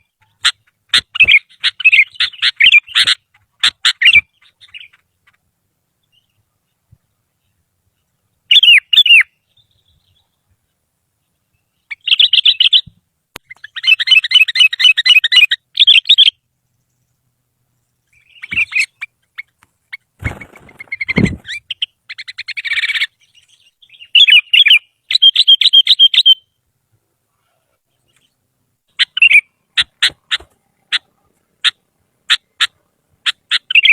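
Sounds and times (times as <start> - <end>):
bulbul singing: 7.4 - 10.6, 11.2 - 19.6, 20.4 - 26.6, 27.9 - 33.9.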